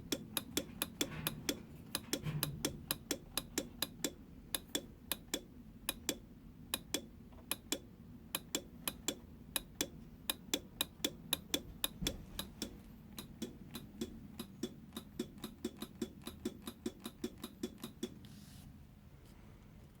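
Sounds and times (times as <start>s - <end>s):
sharp clicks: 0.0s - 18.2s.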